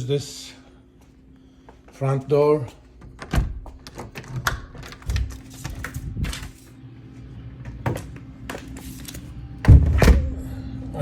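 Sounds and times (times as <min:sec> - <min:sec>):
steady low hum: 0:00.0 - 0:11.0
door lock clicks and knocks: 0:03.0 - 0:05.4.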